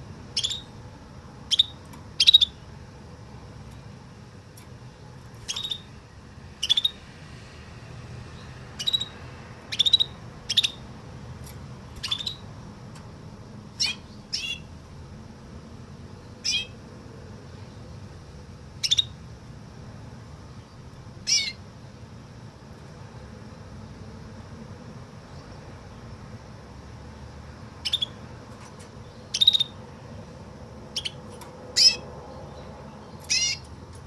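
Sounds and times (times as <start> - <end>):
canary singing: 0.2 - 2.9, 4.8 - 7.2, 8.3 - 12.7, 13.7 - 14.8, 16.2 - 16.8, 18.7 - 19.3, 20.6 - 21.7, 27.8 - 34.0.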